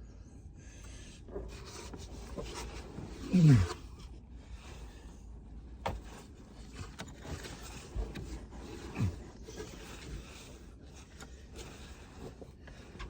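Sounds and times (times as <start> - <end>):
scraping and rubbing of materials: 5.9 - 13.0.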